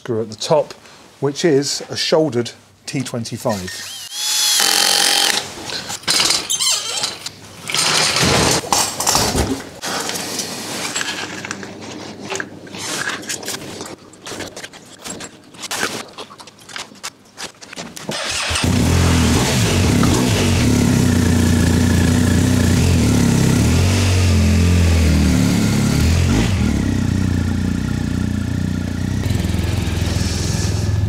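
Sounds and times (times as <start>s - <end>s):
motorcycle engine running: 18.6s - 31.0s.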